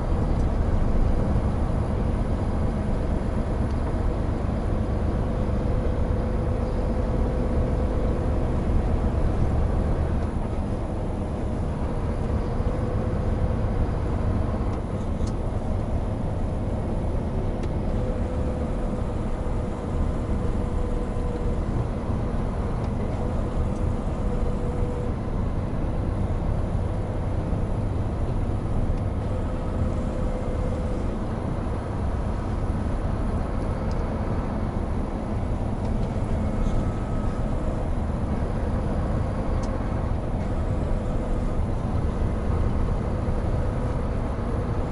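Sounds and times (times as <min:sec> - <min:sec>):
truck diesel engine running: 0:00.0 - 0:44.9
faint whine: 0:17.5 - 0:44.9.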